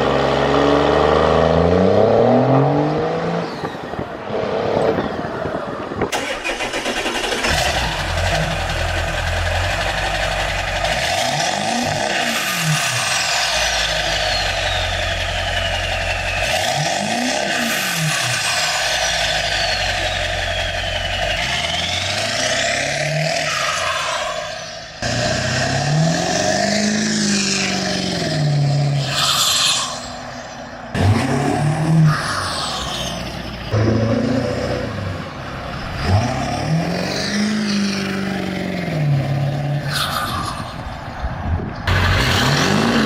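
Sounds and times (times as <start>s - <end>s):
diesel engine revving: 0.0s - 41.1s, 41.8s - 43.0s
turbo whistle: 13.4s - 17.4s, 18.4s - 22.8s.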